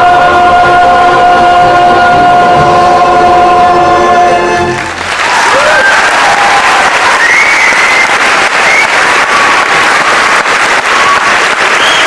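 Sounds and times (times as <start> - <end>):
audience applauding: 4.7 - 12.0
high whoops: 5.4 - 12.0.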